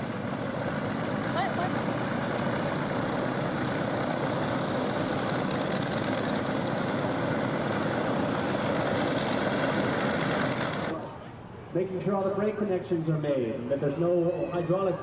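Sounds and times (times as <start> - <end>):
aircraft engine running: 0.0 - 10.9.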